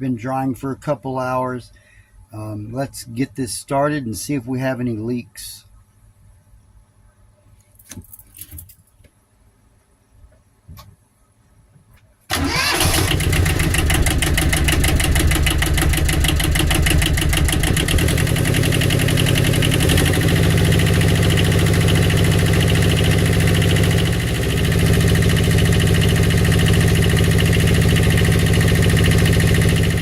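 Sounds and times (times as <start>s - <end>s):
small diesel engine running: 12.3s - 30.0s.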